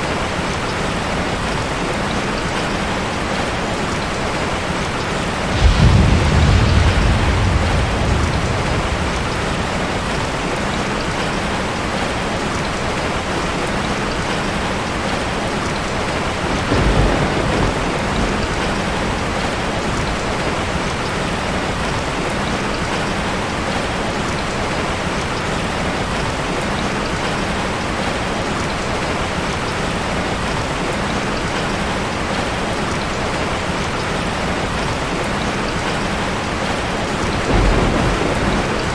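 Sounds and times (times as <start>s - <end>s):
rushing water: 0.0s - 38.9s
deep rumbling swells: 5.4s - 11.3s.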